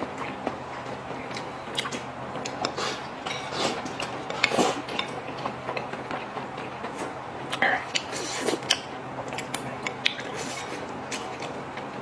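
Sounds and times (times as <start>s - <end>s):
utensils clinking on plates: 2.6s - 5.5s.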